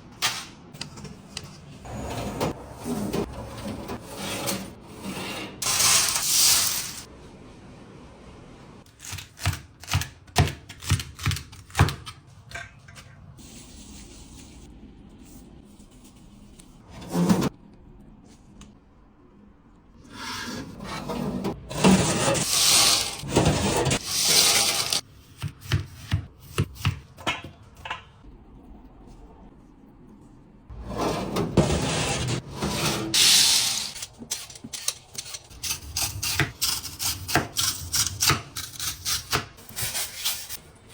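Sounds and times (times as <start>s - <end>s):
rubbing or scraping: 20.1s - 25.0s, 30.7s - 36.6s.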